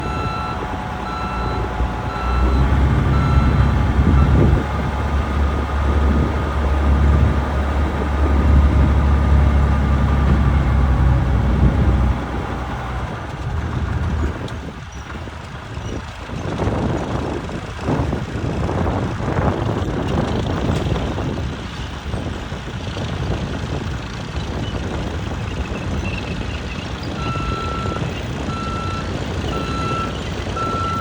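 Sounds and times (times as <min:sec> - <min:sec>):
reversing alarm beeping: 0:00.0 - 0:04.8, 0:27.2 - 0:31.0
truck engine rumble: 0:00.0 - 0:31.0.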